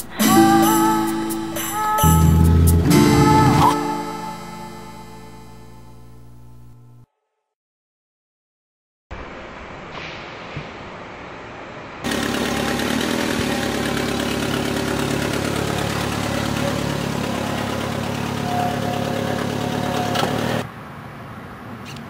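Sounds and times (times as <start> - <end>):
engine running steadily: 12.0 - 20.6.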